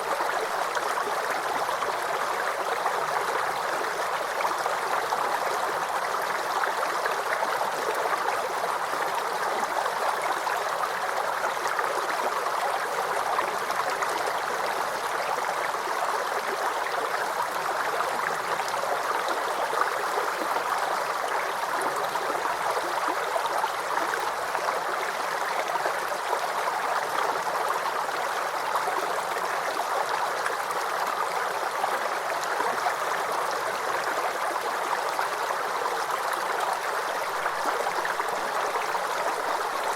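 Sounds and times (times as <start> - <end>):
creek babbling over stones: 0.0 - 39.9.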